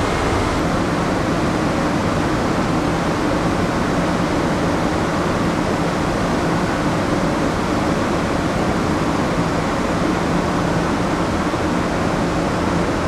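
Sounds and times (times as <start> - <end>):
ship ventilation and machinery hum: 0.0 - 13.0.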